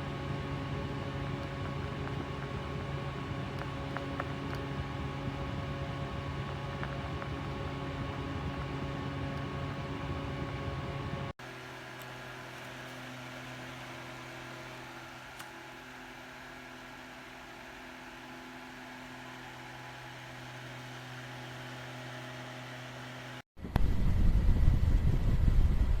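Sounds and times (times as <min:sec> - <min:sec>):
air buffeting the microphone: 0:00.0 - 0:11.3, 0:23.6 - 0:26.0
fan motor hum: 0:00.0 - 0:23.4.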